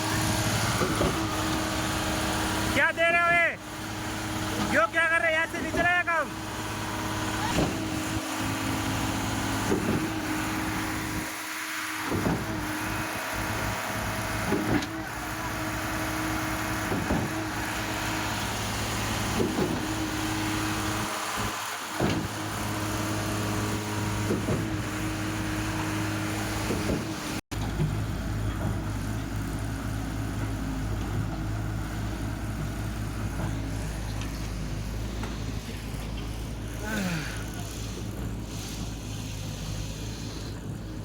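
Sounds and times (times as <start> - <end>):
diesel engine running: 0.0 - 41.0
pump knocking: 5.7 - 27.2.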